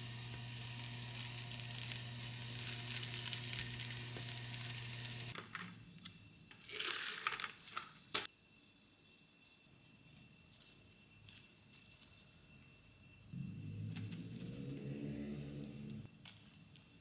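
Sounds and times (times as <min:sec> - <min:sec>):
kitchen appliance humming: 0:00.0 - 0:05.4
plastic packaging crinkling and tearing: 0:06.6 - 0:07.9.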